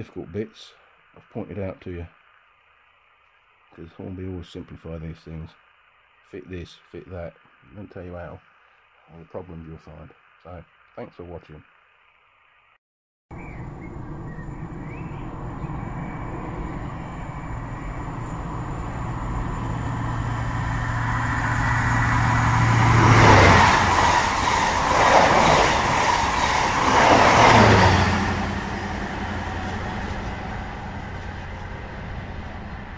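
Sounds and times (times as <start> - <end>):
train passing: 13.4 - 32.9.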